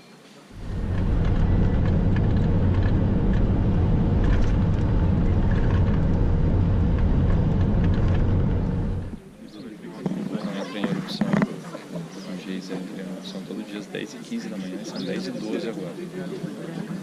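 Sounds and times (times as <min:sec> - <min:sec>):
vehicle road and engine rumble: 0:00.5 - 0:09.4.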